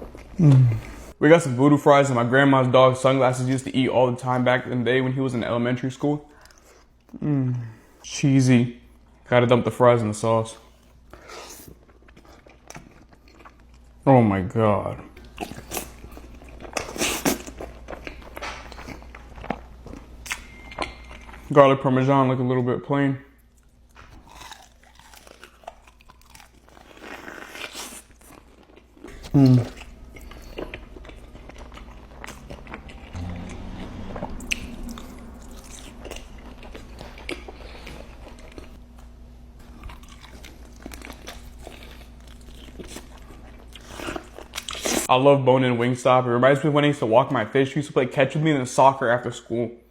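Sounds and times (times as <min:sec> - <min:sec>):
wet chewing: 0:11.0 - 0:14.0, 0:23.4 - 0:45.1.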